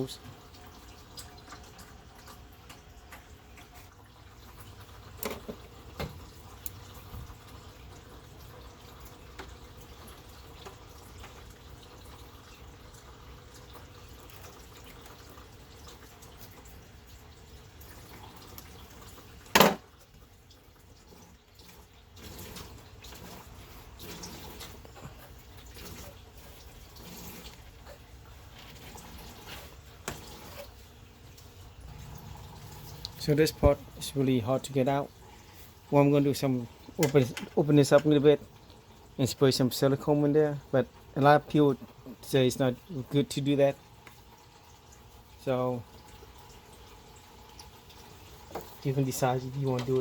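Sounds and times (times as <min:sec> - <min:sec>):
liquid trickling into a pan: 0:00.0 - 0:50.0.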